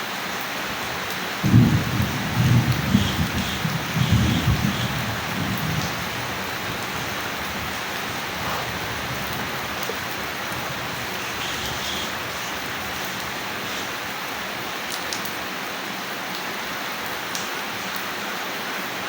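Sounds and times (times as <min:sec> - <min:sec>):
steady rain: 0:00.0 - 0:19.0
thunder rumbling: 0:01.4 - 0:14.7.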